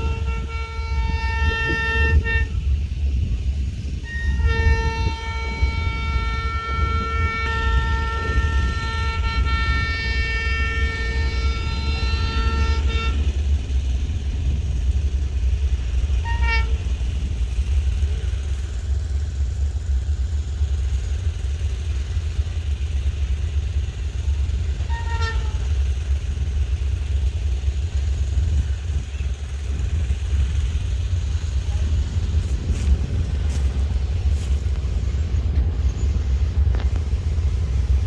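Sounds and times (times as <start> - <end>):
train horn blasts: 0.0 - 2.8, 4.0 - 14.2, 15.3 - 18.5, 24.4 - 26.4
low rumble: 0.0 - 38.0.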